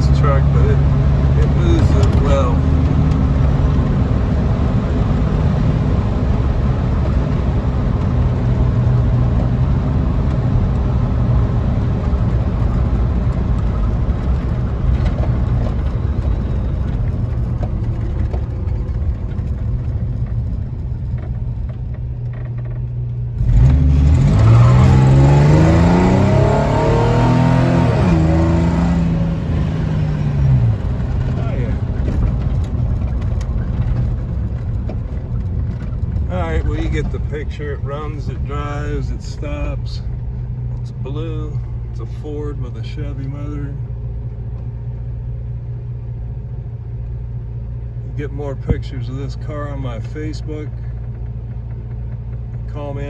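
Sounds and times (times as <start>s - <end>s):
pickup truck engine revving: 0.0s - 17.6s, 23.3s - 34.6s
road noise: 0.0s - 53.0s.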